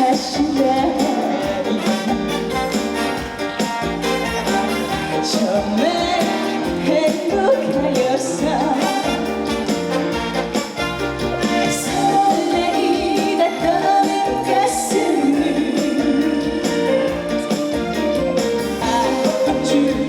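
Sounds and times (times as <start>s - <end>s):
person singing lead melody: 0.0s - 18.2s, 18.8s - 20.0s
live band playing: 0.0s - 20.0s.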